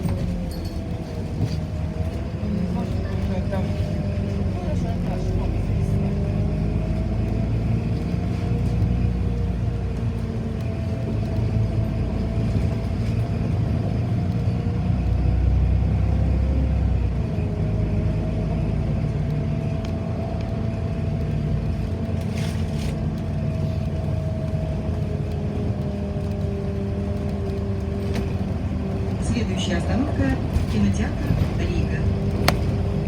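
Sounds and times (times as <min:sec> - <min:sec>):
bus engine and road rumble: 0:00.0 - 0:33.0.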